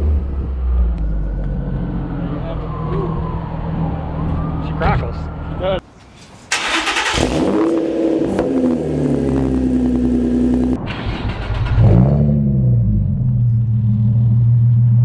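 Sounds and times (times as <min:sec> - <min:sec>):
exhaust crackles and pops: 0:05.8 - 0:12.1
car engine revving: 0:06.5 - 0:15.0.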